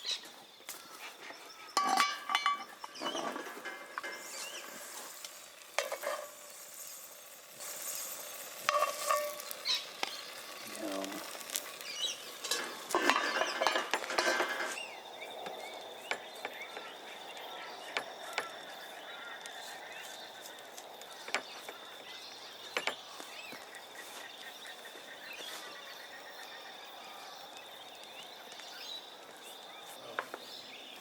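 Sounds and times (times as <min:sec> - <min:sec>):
stirring in a pan: 0:01.8 - 0:15.0
food sizzling in a pan: 0:01.8 - 0:26.6.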